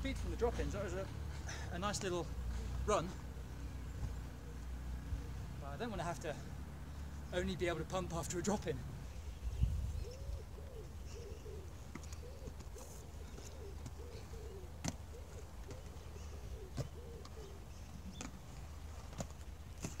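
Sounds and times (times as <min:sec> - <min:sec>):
low steady rumble: 0:00.0 - 0:20.0
bird cooing: 0:00.9 - 0:05.6, 0:09.2 - 0:20.0.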